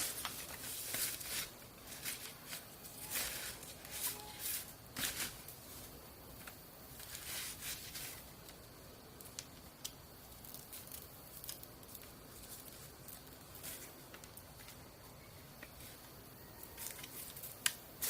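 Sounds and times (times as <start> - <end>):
light clicks and snaps: 9.2 - 12.2.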